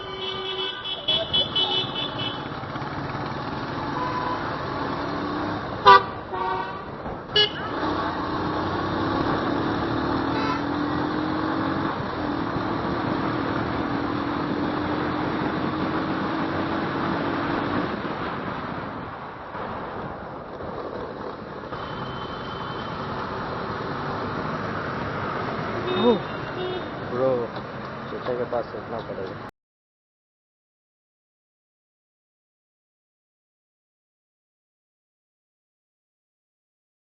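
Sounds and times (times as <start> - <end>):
vehicle horn honking: 0.0 - 2.5, 3.9 - 4.5, 5.8 - 7.8, 21.8 - 23.0, 25.8 - 27.0
road and wind noise: 0.0 - 29.5.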